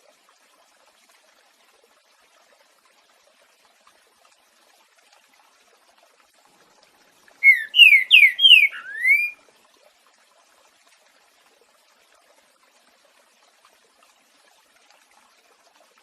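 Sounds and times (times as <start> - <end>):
bird whistling song: 7.4 - 9.4.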